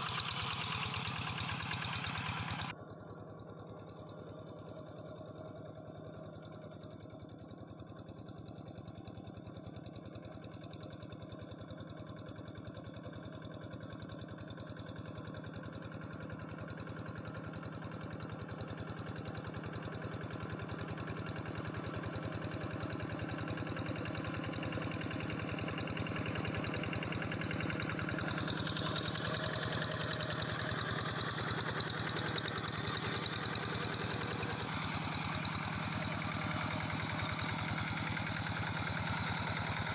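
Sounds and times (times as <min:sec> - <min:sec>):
diesel engine chugging: 0:00.0 - 0:05.6, 0:14.2 - 0:39.9.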